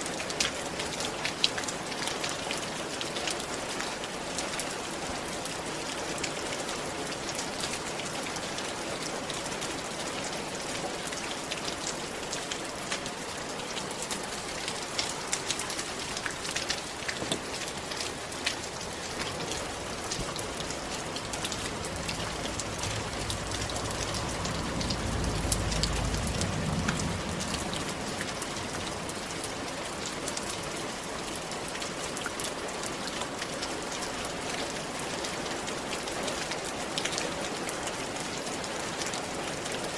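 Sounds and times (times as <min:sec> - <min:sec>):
rain on a roof: 0:00.0 - 0:39.9
low rumble: 0:18.9 - 0:29.8.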